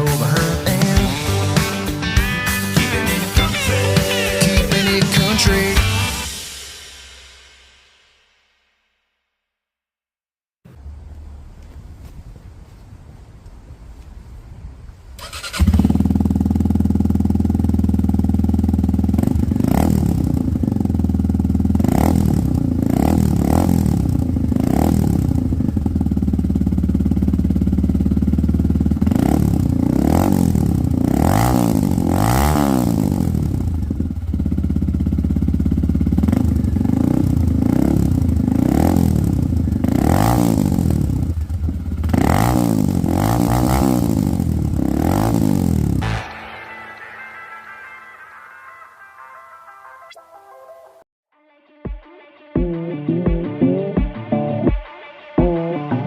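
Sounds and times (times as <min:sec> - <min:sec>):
motorcycle engine revving: 0:15.2 - 0:46.5.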